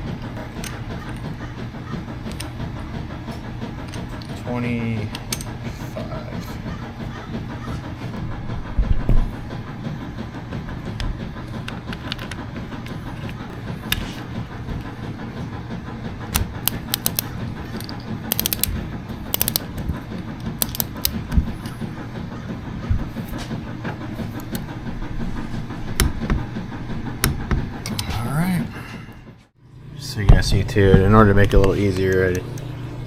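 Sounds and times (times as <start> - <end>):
steady low hum: 0.0 - 33.0
ratchet wrench clicking: 16.6 - 19.7, 20.6 - 21.2.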